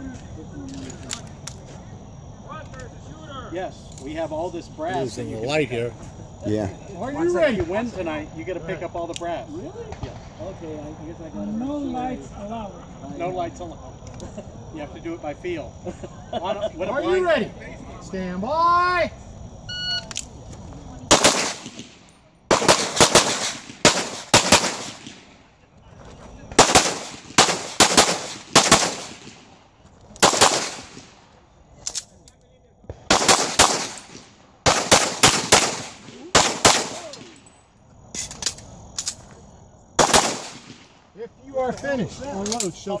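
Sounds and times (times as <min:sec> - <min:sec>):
pistol shots with echo: 0:21.1 - 0:25.4, 0:26.5 - 0:29.5, 0:30.2 - 0:31.2, 0:33.1 - 0:37.4, 0:40.0 - 0:41.0.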